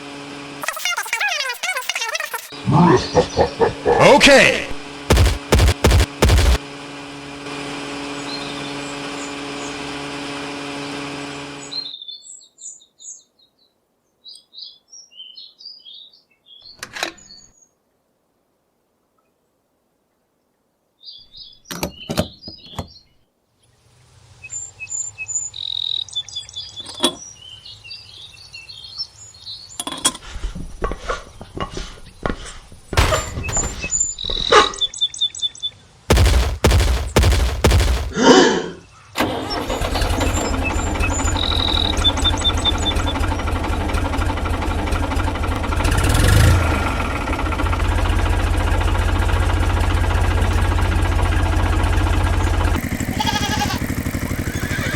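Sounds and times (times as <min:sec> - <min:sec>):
engine drone: 0:05.1 - 0:06.6, 0:36.1 - 0:38.2, 0:40.7 - 0:54.9.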